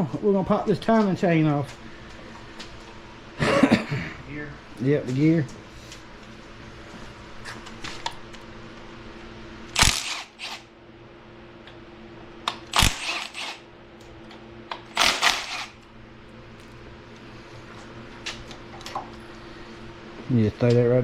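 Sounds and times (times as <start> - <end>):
sharp metal clanks with rattle: 9.8 - 10.6, 12.7 - 13.6.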